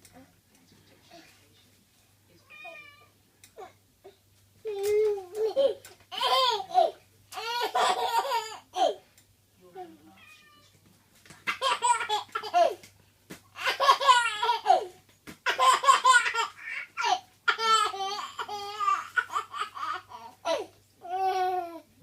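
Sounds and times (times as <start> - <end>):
toddler laughing: 5.3 - 9.0, 11.5 - 12.8, 13.6 - 14.9, 15.5 - 21.5.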